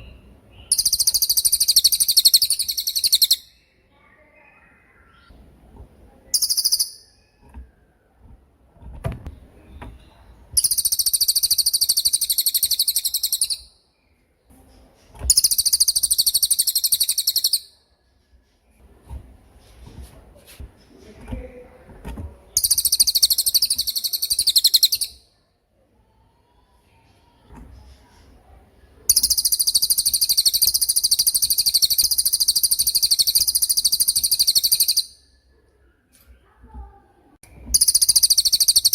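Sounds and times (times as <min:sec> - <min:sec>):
songbird trilling: 0:00.6 - 0:03.6, 0:06.3 - 0:07.3, 0:10.6 - 0:13.7, 0:15.3 - 0:17.7, 0:22.6 - 0:25.2, 0:29.1 - 0:35.2, 0:37.7 - 0:38.9.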